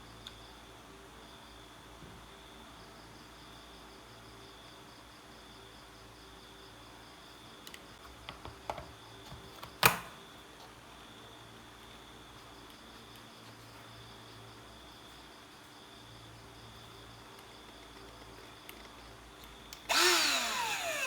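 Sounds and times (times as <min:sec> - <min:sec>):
high-pitched chirring: 0:19.9 - 0:21.0.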